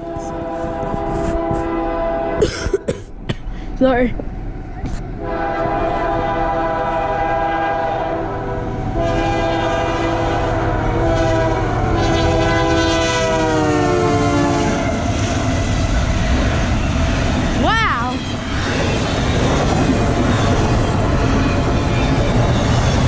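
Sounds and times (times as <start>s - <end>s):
locomotive air horn blast: 0.0s - 2.5s, 5.2s - 15.0s
low rumble of train: 0.0s - 23.0s.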